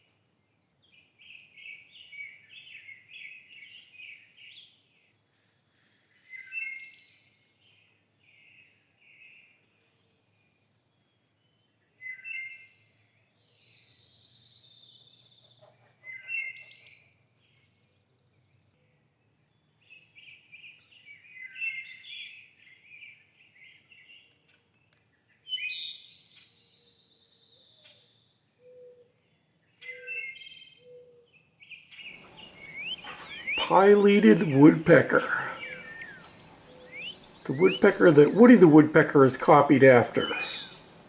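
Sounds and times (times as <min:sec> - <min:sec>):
small birds chirping: 0:32.1 - 0:41.0.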